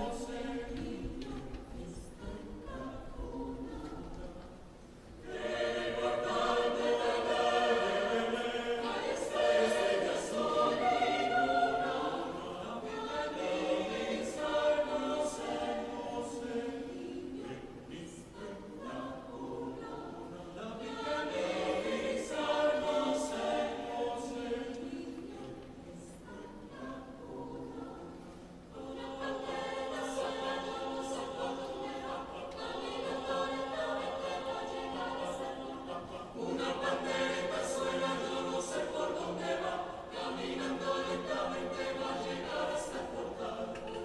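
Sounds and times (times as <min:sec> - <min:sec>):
vocal ensemble singing a cappella: 0:00.0 - 0:44.0.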